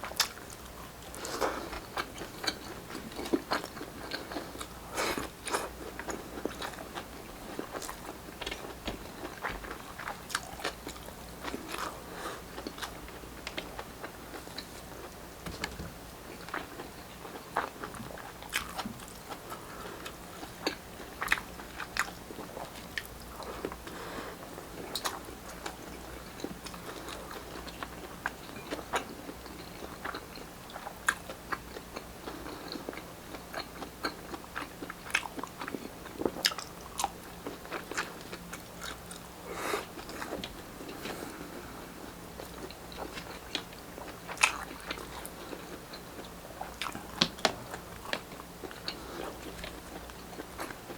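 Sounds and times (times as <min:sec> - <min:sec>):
crunchy chewing and biting: 0:16.4 - 0:23.8, 0:42.4 - 0:50.9.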